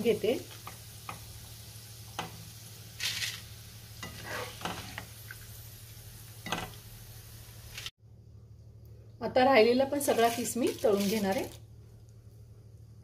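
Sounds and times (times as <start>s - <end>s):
potato shreds sizzling in oil: 0.0s - 7.9s, 9.4s - 13.0s
metal spoon scraping wok: 4.0s - 5.0s, 10.1s - 11.2s.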